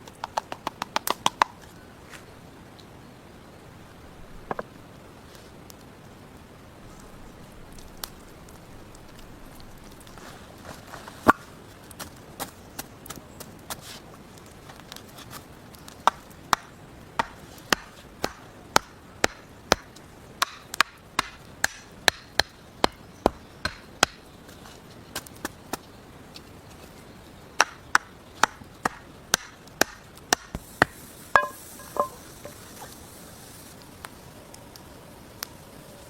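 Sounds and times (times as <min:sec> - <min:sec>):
axe chopping wood: 0:27.6 - 0:32.5.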